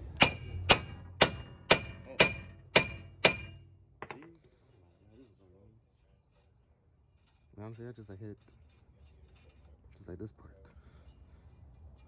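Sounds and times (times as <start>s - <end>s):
hammer striking steel: 0.0s - 4.3s.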